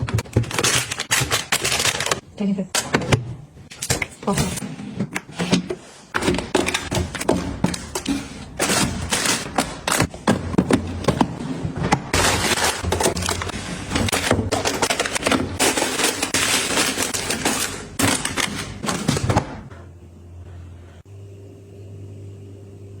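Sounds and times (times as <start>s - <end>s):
plastic packages clattering: 0.0s - 2.2s, 6.2s - 19.6s.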